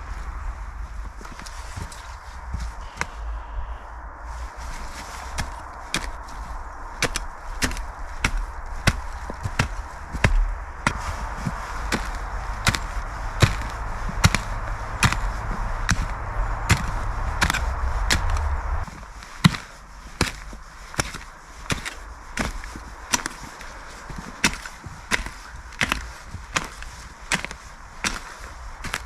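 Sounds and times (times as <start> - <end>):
steady rushing noise: 0.0 - 29.0.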